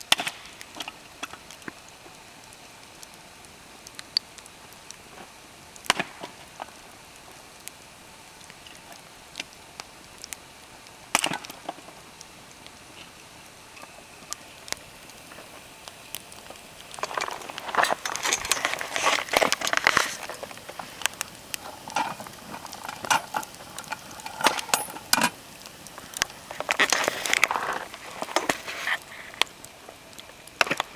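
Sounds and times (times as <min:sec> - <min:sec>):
wood fire crackling and popping: 0:00.0 - 0:30.9.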